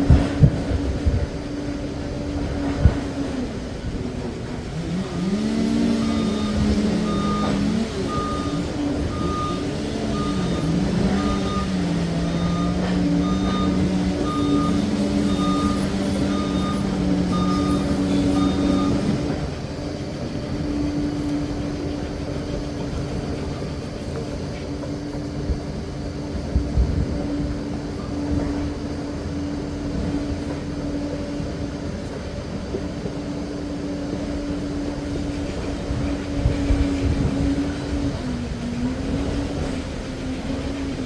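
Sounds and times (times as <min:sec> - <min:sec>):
dozer diesel engine running: 0:00.0 - 0:41.0
reversing alarm beeps: 0:05.2 - 0:19.5.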